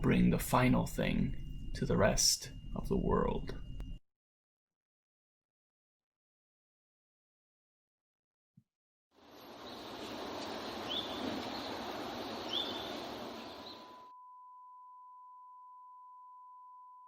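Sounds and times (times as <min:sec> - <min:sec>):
steady pure beep tone: 0:00.0 - 0:04.0, 0:13.6 - 0:17.0
bird chirps: 0:09.2 - 0:14.0
outdoor hiss: 0:09.2 - 0:14.0.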